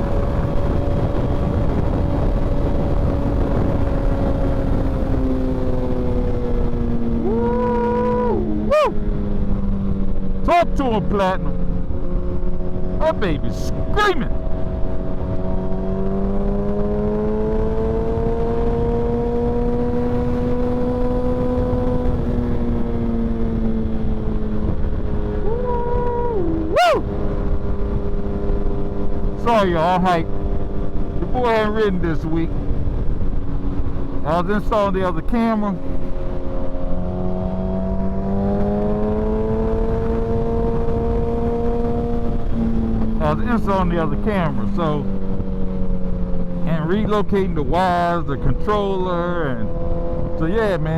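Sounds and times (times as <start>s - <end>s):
wind rush: 0.0s - 9.9s, 12.2s - 29.5s
motorcycle engine revving at speed: 0.0s - 50.9s.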